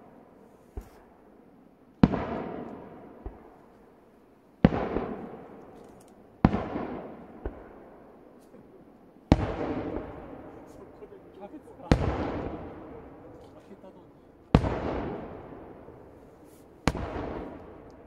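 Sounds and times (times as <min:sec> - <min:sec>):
firework booms with echo: 0:02.0 - 0:03.6, 0:04.6 - 0:05.7, 0:06.4 - 0:08.1, 0:09.3 - 0:11.1, 0:11.7 - 0:13.4, 0:14.5 - 0:18.0.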